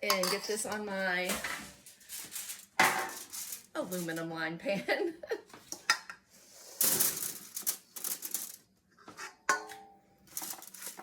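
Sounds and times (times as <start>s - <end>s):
potato pieces clattering on foil: 0.0s - 4.3s, 6.8s - 8.7s, 9.5s - 11.0s.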